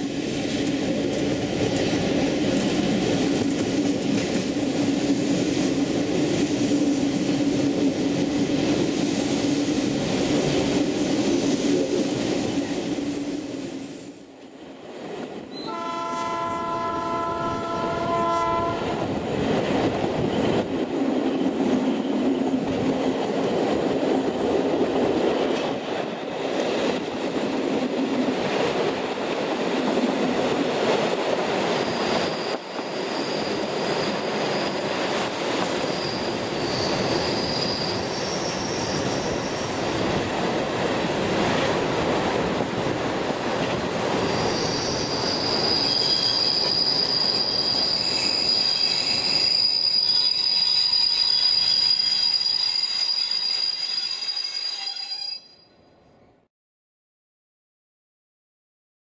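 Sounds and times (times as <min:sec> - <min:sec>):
train wheels clattering on rails: 0:00.0 - 0:13.5, 0:19.0 - 0:53.2
locomotive horn: 0:15.6 - 0:19.0
high wheel squeal: 0:35.7 - 0:39.8, 0:44.3 - 0:55.8.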